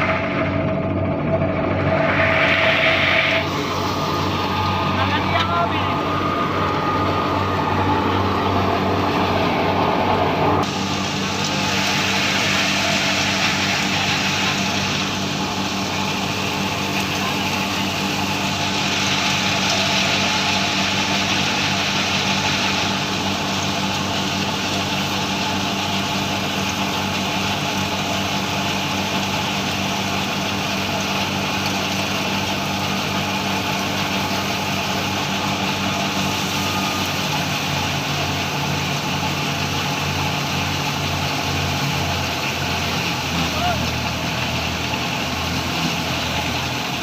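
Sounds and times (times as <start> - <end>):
low pulsing note: 0.0 - 19.6
farm machine engine running: 0.0 - 47.0.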